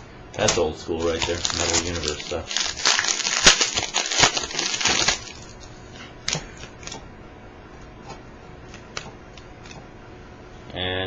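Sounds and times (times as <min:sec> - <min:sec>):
wrapper crinkling: 0:01.0 - 0:05.8.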